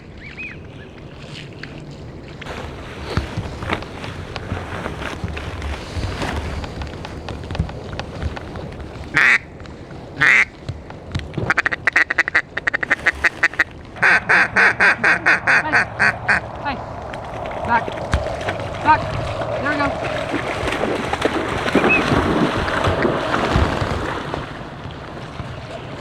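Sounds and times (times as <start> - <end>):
low rustling: 0.0 - 26.0
duck call quacks: 11.5 - 16.4.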